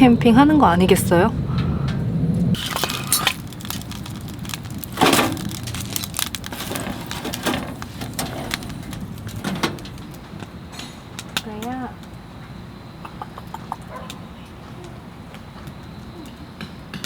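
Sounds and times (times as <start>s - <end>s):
wood fire crackling and popping: 2.5s - 12.2s.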